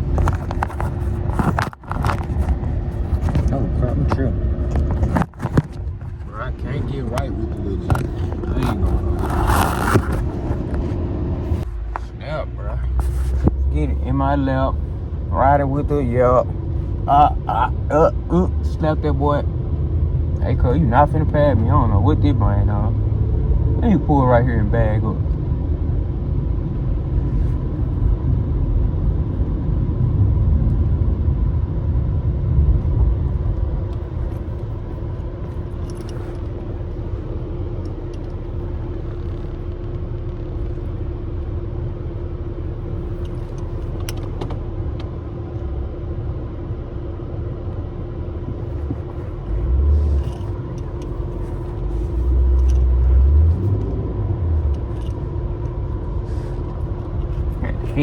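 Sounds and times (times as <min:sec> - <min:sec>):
truck engine rumbling: 0:00.0 - 0:58.0.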